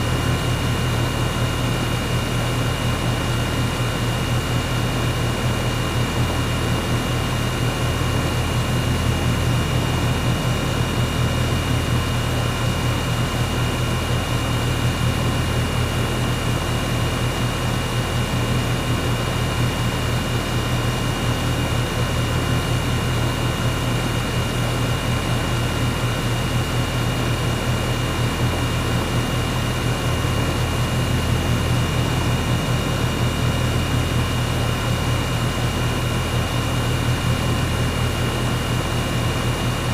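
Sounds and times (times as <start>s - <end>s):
air conditioner humming: 5.3s - 21.9s.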